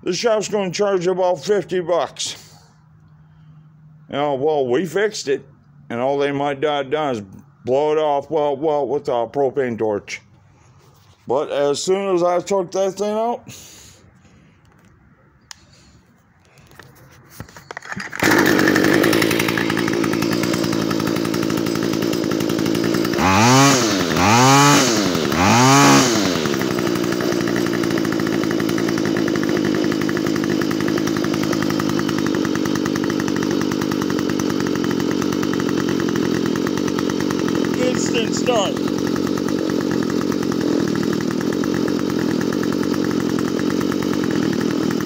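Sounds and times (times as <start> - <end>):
string trimmer engine: 15.5 - 45.0.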